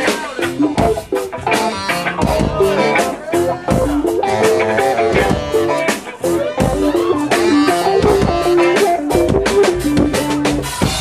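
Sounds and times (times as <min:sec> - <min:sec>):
guitar riff: 0:00.0 - 0:11.0
steady drum beat: 0:00.0 - 0:11.0.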